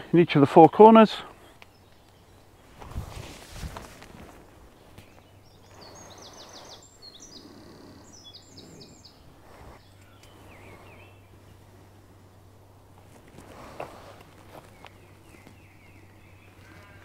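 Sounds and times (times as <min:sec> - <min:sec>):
songbird singing: 0:00.0 - 0:17.0
rustling on leaf litter: 0:02.6 - 0:05.2.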